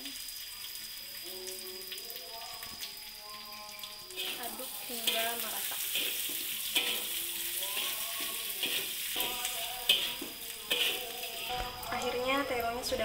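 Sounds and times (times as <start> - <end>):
paste sizzling: 3.2 - 13.0
metal spatula scraping a wok: 4.2 - 11.6.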